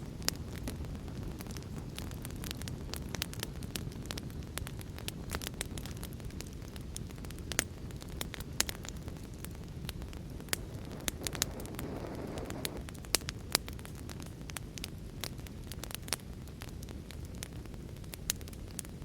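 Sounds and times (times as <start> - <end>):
wood fire crackling: 0.0 - 19.0
rain rushing: 10.6 - 12.8.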